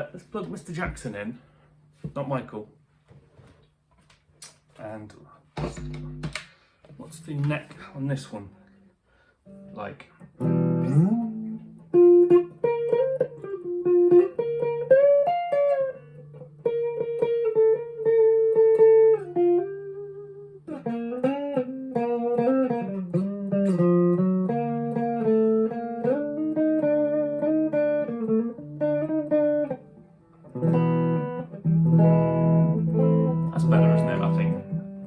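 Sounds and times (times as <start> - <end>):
electric guitar notes with bends: 5.6 - 6.4, 9.5 - 35.0.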